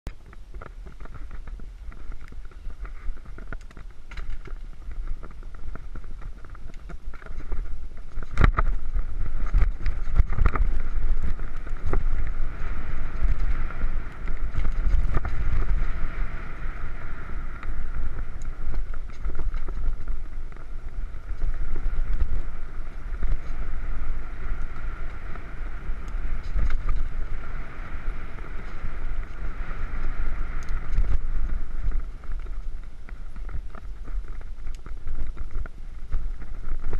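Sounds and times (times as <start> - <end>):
bike tyres rumbling on dirt: 0.1 - 36.9.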